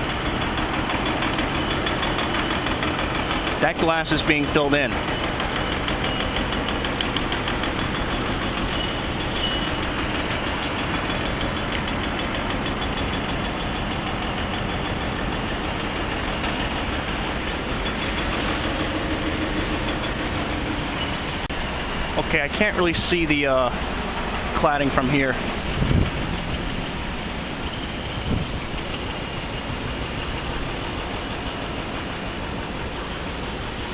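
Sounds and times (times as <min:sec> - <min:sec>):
fast even rattle: 0:00.0 - 0:21.5
construction engines running: 0:00.0 - 0:33.9.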